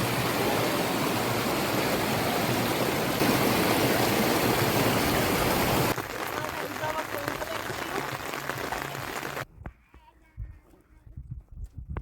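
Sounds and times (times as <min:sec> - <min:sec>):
water rushing: 0:00.0 - 0:09.4.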